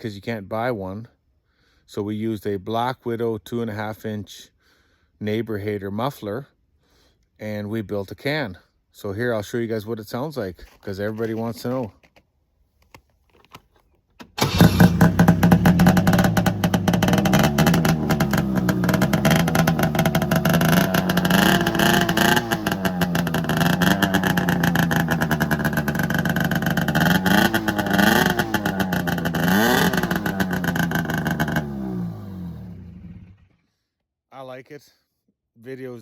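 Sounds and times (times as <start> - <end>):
snowmobile engine idling and revving: 14.5 - 33.6.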